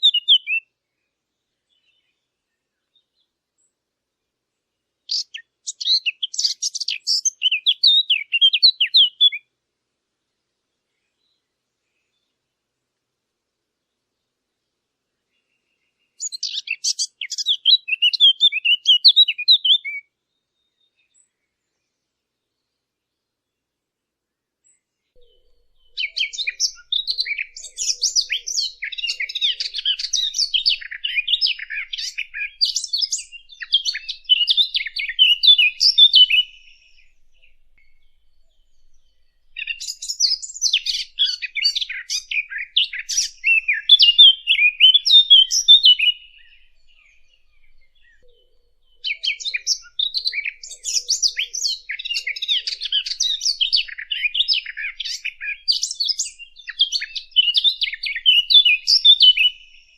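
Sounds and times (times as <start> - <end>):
bird twittering: 0.0 - 0.6, 5.1 - 9.4, 16.2 - 20.0, 25.2 - 59.9.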